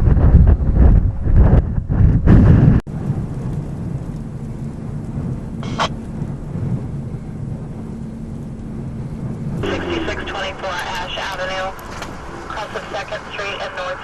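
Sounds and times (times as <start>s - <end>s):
low wind rumble: 0.0s - 14.0s
wind gusts buffeting microphone: 0.0s - 14.0s
faint hum: 2.9s - 14.0s.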